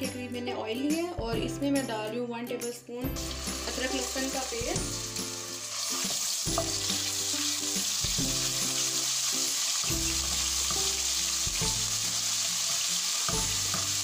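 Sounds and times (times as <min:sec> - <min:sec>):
background music: 0:00.0 - 0:14.0
paste sizzling in hot oil: 0:03.2 - 0:14.0.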